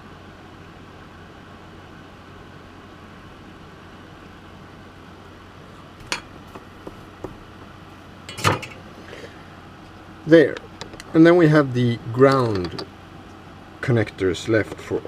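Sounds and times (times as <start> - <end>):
tools clicking on a workbench: 12.3 - 12.9.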